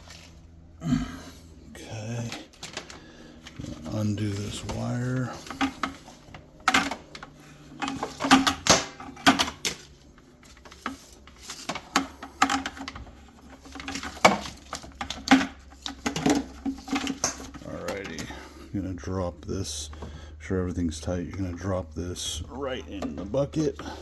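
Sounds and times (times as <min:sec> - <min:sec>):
hose fittings clicking and clattering: 0:02.5 - 0:09.8, 0:10.4 - 0:18.3.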